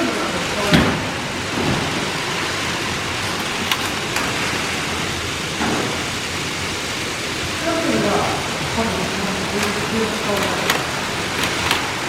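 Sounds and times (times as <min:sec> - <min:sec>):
toy trains whirring and rattling: 0:01.4 - 0:12.0.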